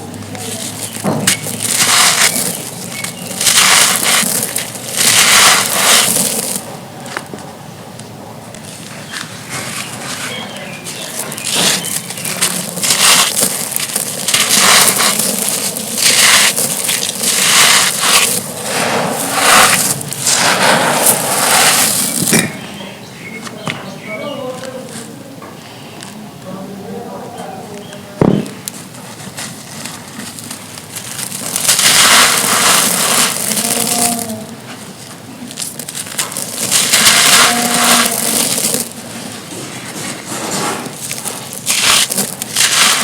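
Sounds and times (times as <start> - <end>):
stone slabs crunching: 0.0 - 6.7, 9.5 - 22.8, 28.2 - 28.8, 29.6 - 43.0.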